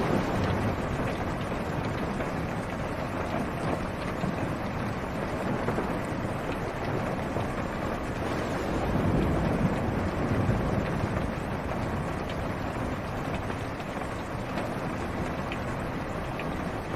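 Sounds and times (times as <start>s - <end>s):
rain drumming on car roof: 0.0s - 16.9s
low rumble: 7.9s - 12.7s.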